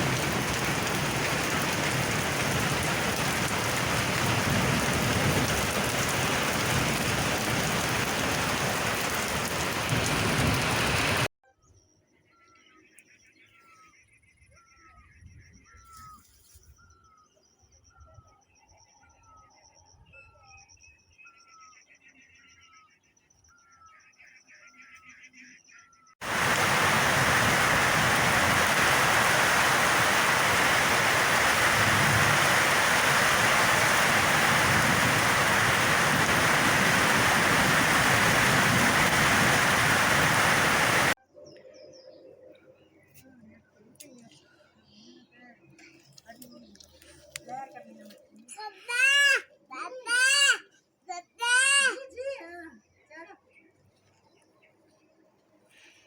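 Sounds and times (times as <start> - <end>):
heavy rain hissing: 0.0 - 11.3, 26.2 - 41.2
birds chirping: 12.2 - 48.4.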